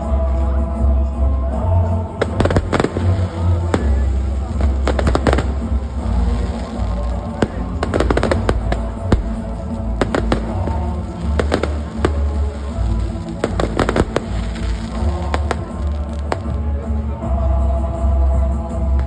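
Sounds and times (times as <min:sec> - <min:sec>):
music with heavy bass: 0:00.0 - 0:19.0
firecrackers banging: 0:02.2 - 0:16.9.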